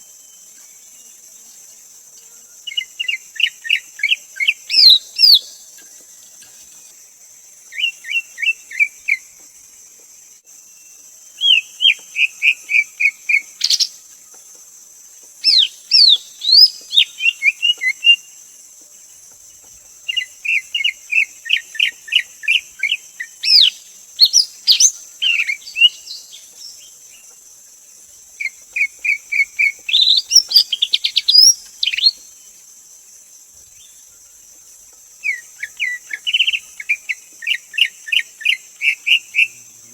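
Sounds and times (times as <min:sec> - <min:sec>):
steady high hiss: 0:00.0 - 0:39.9
bird singing whistled notes: 0:02.7 - 0:05.6, 0:07.7 - 0:09.3, 0:10.7 - 0:14.0, 0:15.4 - 0:18.3, 0:20.1 - 0:26.9, 0:28.4 - 0:32.4, 0:35.2 - 0:39.6.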